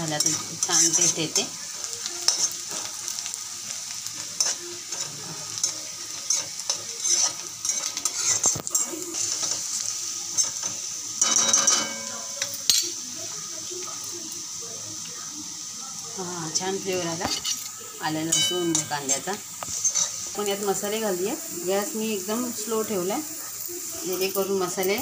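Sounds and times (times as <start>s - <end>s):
utensil stirring and scraping pan: 0.0s - 1.5s, 2.2s - 3.3s, 4.1s - 12.9s, 16.8s - 25.0s
onion sizzling in hot oil: 0.0s - 25.0s.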